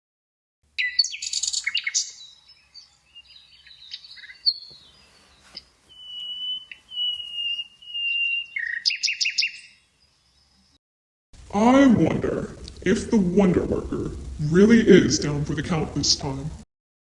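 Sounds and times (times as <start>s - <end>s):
birds chirping: 0.8s - 10.8s
long whistled bird notes: 0.8s - 10.8s.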